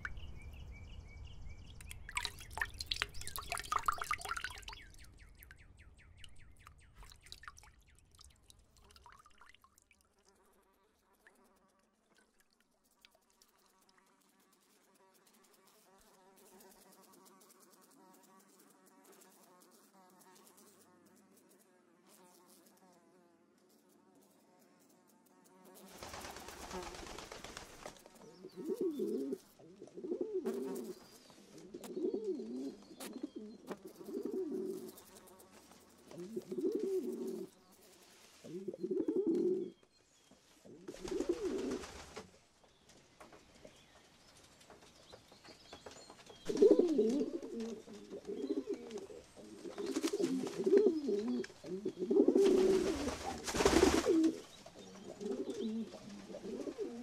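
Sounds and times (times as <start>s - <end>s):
pigeons cooing: 28.4s - 30.9s, 31.5s - 35.0s, 36.1s - 37.5s, 38.5s - 39.8s, 40.7s - 41.8s, 46.4s - 57.0s.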